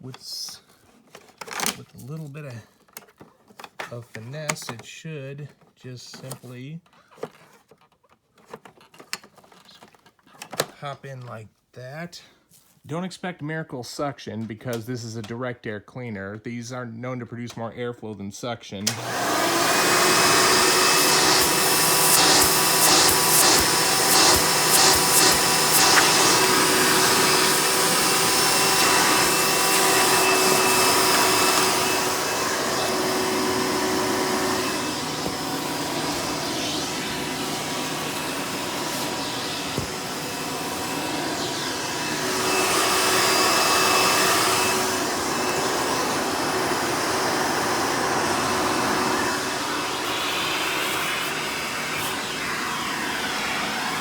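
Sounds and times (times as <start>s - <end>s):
vacuum cleaner whining: 18.8s - 54.0s.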